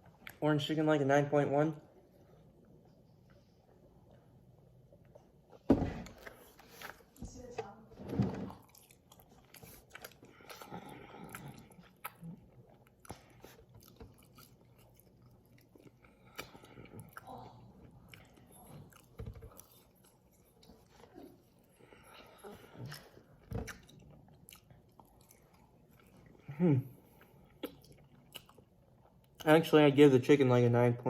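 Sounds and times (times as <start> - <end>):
person biting and chewing: 8.6 - 17.2, 22.8 - 26.0.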